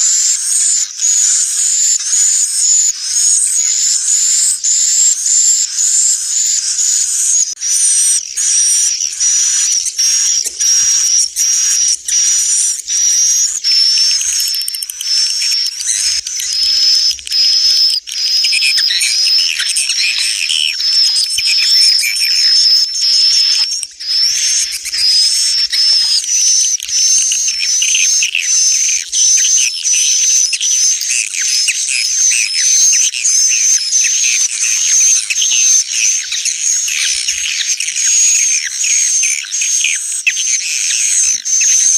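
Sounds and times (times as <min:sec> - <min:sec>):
recorded swiftlets twittering: 0:00.0 - 0:41.9.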